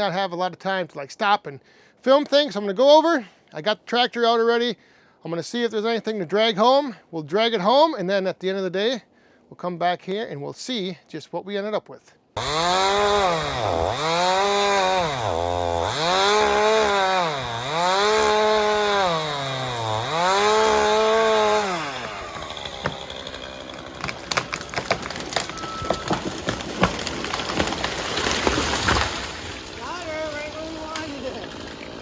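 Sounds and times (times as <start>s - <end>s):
chainsaw engine revving: 12.4s - 29.0s
crackling and snapping: 22.0s - 32.0s.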